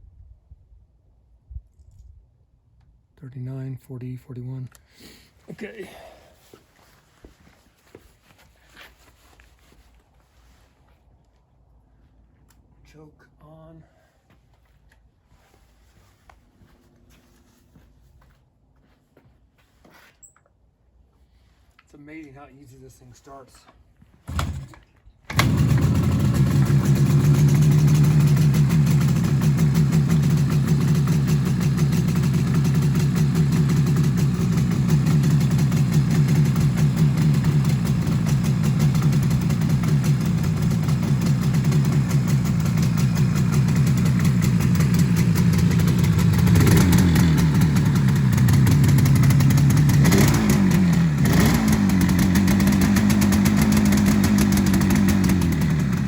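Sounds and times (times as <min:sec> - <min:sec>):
motorcycle engine idling: 0:25.3 - 0:56.0.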